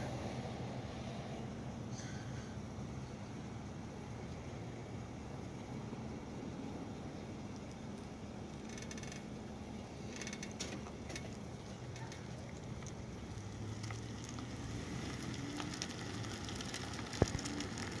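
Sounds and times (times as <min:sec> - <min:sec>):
vehicle engines idling: 0:00.0 - 0:18.0
light crackles and ticks: 0:07.5 - 0:09.3, 0:10.1 - 0:18.0.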